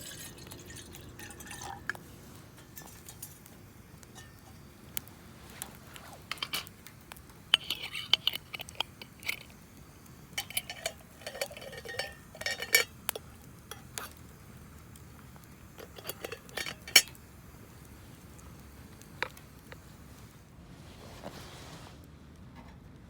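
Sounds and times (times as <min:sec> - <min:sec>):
cutlery clinking on tableware: 0:04.2 - 0:04.5, 0:07.5 - 0:09.5, 0:10.3 - 0:14.1, 0:15.8 - 0:17.2.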